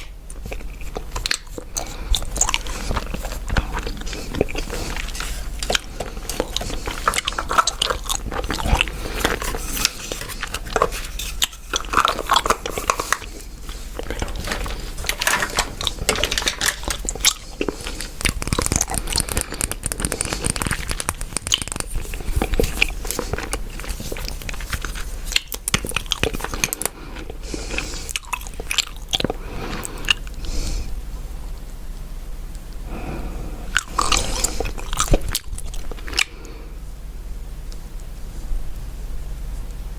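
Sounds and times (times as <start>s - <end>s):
gum chewing mouth clicks: 0.0s - 30.4s, 33.7s - 36.4s.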